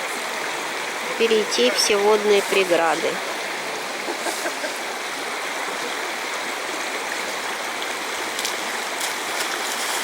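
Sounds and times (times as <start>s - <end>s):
river rushing over rocks: 0.0s - 10.0s
faint splashes: 7.2s - 10.0s.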